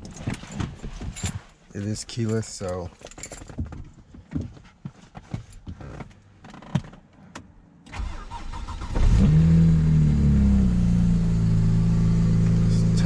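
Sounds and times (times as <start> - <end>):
man talking: 1.7 - 3.0, 12.6 - 13.0
car engine starting and idling: 7.8 - 13.0.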